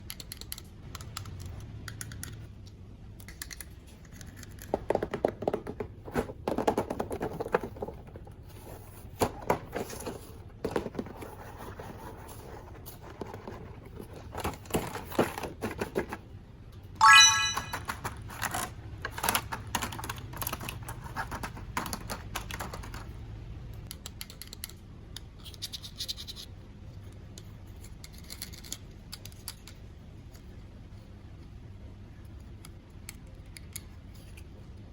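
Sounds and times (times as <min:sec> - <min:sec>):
plastic toys being handled: 0:03.2 - 0:16.3, 0:17.0 - 0:23.1, 0:24.0 - 0:31.4, 0:32.5 - 0:34.8
brief high-pitched tone: 0:17.0 - 0:17.8.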